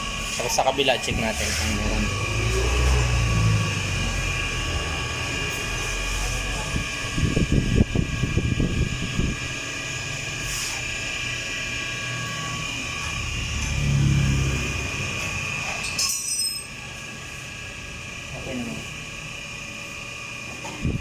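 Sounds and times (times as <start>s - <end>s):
workshop machinery humming: 0.0s - 21.0s.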